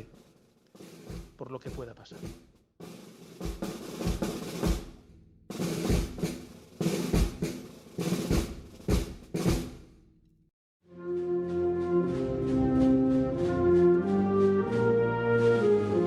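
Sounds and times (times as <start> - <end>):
snare drum rolls: 0.0 - 10.0, 11.1 - 16.0
sustained brass chord: 10.9 - 16.0
bass drum strokes: 11.1 - 15.1.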